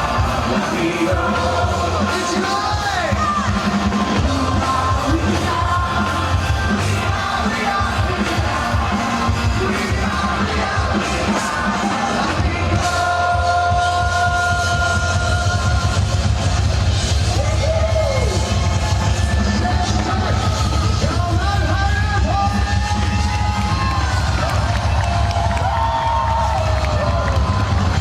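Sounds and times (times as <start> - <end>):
person singing: 0.0 - 16.3
crowd yelling along: 0.0 - 28.0
loud live rock music: 0.0 - 28.0.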